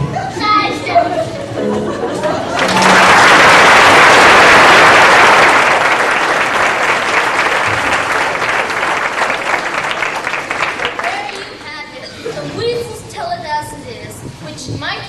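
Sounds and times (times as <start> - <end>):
audience applause: 2.5 - 11.6.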